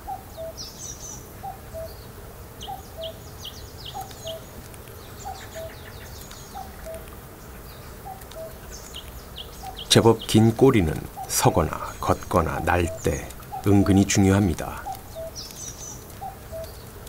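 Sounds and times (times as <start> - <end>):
high bird chirps: 7.7 - 16.9.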